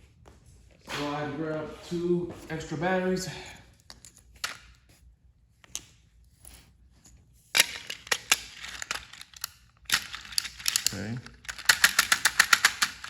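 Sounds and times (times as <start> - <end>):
plastic toy clicks and clatter: 7.6 - 13.0.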